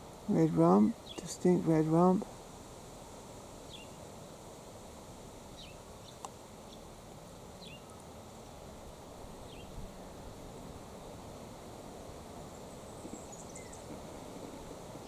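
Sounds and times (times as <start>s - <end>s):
outdoor background noise: 0.0s - 15.0s
bird chirping: 3.7s - 4.0s, 5.6s - 6.8s, 7.6s - 8.0s, 9.4s - 9.8s, 12.5s - 14.2s.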